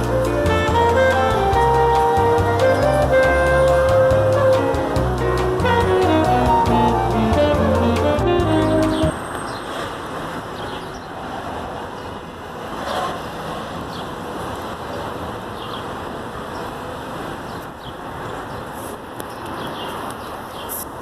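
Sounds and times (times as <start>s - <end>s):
jazz music with brass: 0.0s - 9.3s
road traffic noise: 0.0s - 21.0s.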